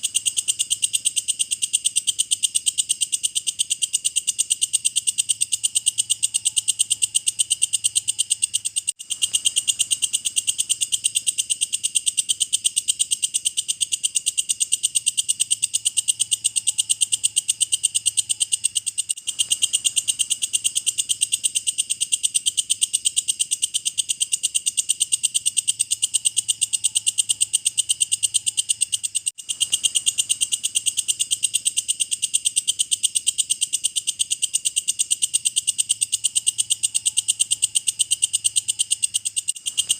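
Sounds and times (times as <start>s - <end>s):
insect rattling trill: 0.0s - 39.9s.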